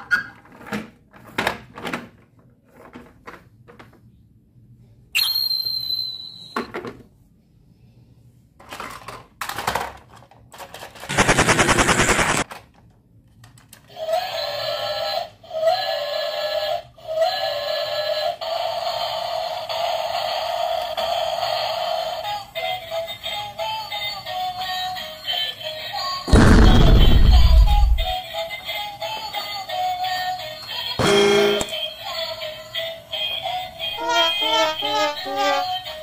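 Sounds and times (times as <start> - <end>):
toy train rattling buzz: 29.4 - 36.0
tinny electronic toy tune: 31.0 - 31.8, 34.0 - 35.8.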